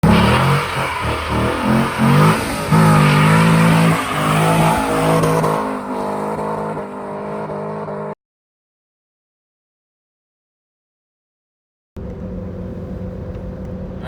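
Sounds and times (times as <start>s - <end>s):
car engine at high revs: 0.0s - 8.2s.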